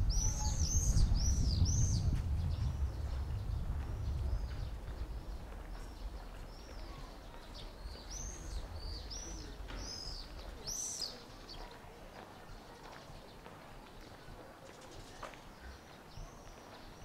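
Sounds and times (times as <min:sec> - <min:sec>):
low rumble: 0:00.0 - 0:06.7
small birds chirping: 0:00.0 - 0:17.0.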